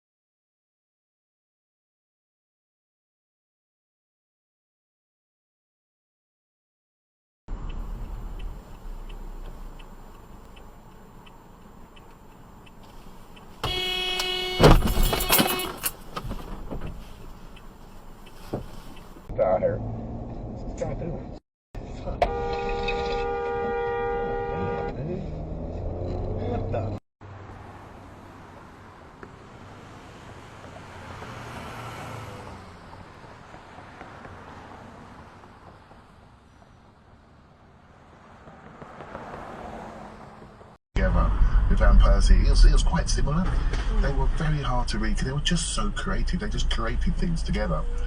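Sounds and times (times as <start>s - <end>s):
passing traffic hum and rush: 7.5s - 48.0s
car horn steady note: 13.6s - 15.9s, 22.2s - 25.0s.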